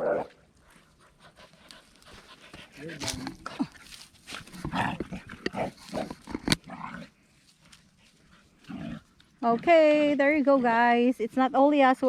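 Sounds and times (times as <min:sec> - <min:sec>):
dog panting: 0:00.6 - 0:05.6, 0:07.6 - 0:08.8.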